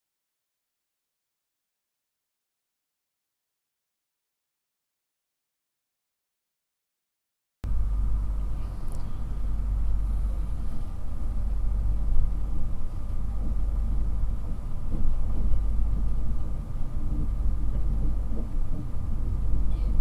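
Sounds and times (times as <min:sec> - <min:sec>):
faint steady whine: 0:07.7 - 0:20.0
train interior rumble: 0:07.7 - 0:20.0.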